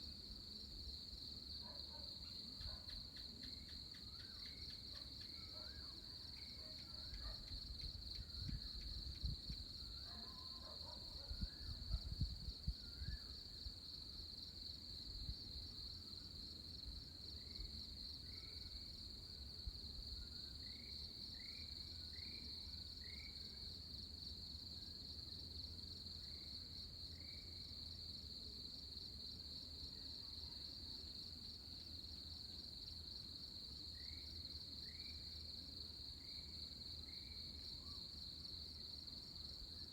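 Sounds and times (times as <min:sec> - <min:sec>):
wind rumble on microphone: 0:07.6 - 0:09.7, 0:11.2 - 0:13.3.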